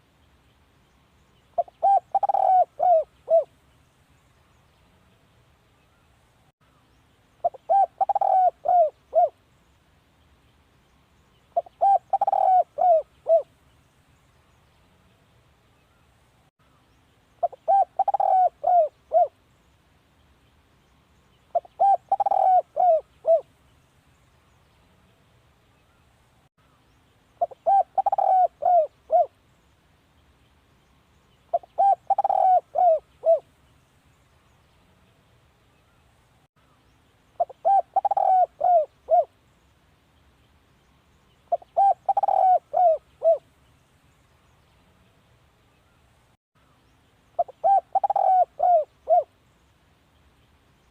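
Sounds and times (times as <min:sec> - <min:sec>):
dove cooing: 0:01.6 - 0:03.5, 0:07.4 - 0:09.4, 0:11.6 - 0:13.5, 0:17.4 - 0:19.4, 0:21.5 - 0:23.5, 0:27.4 - 0:29.3, 0:31.5 - 0:33.5, 0:37.4 - 0:39.3, 0:41.5 - 0:43.4, 0:47.4 - 0:49.3.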